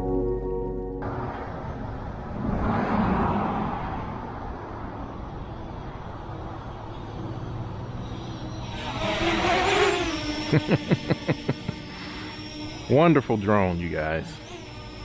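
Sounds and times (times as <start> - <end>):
background music: 0.0 - 1.1
vehicle passing by: 1.0 - 8.0.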